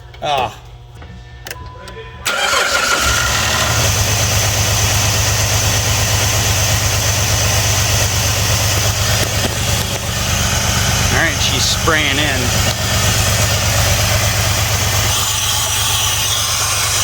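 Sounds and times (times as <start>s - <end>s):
car engine starting and idling: 2.2s - 15.2s.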